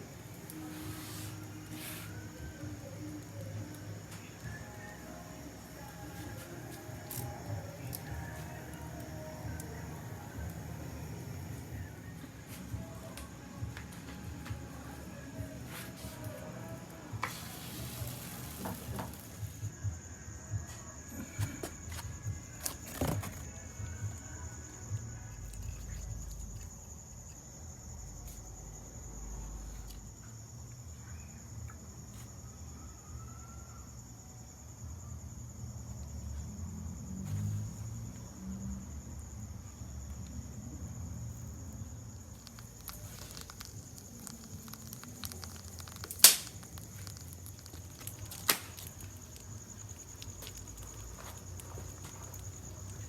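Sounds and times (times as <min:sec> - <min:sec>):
wood fire crackling: 0:00.0 - 0:19.7, 0:42.2 - 0:53.0
high-pitched insect drone: 0:14.6 - 0:53.0
sharp pops of fire: 0:42.4 - 0:49.1.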